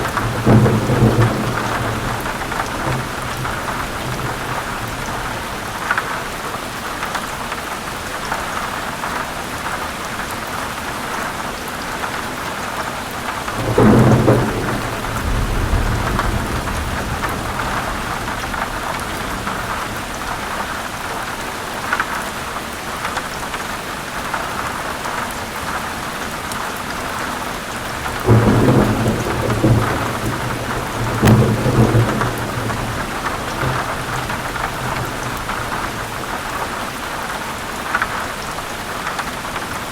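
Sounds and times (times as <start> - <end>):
thunder rolling: 0.0 - 5.6, 13.5 - 20.9, 27.9 - 36.8
heavy rain pouring: 0.0 - 39.9.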